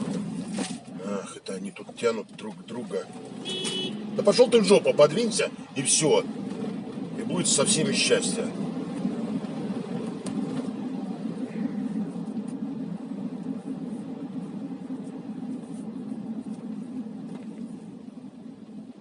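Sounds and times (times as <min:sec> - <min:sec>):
car engine and tyres rumbling: 0:00.0 - 0:19.0.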